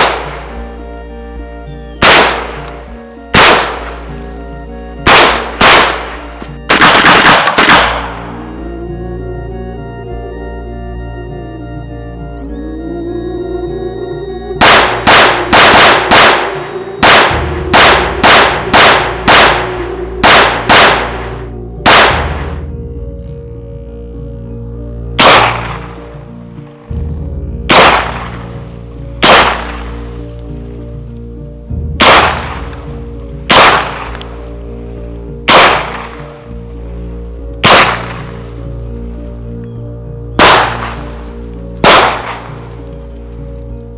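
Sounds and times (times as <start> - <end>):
shotgun shots: 0.0 - 0.7, 2.0 - 4.1, 5.0 - 8.4, 14.6 - 22.6, 25.2 - 26.1, 27.7 - 28.6, 29.2 - 30.1, 32.0 - 32.9, 33.5 - 34.4, 35.5 - 36.4, 37.6 - 38.6, 40.4 - 42.8
background music: 0.0 - 43.9.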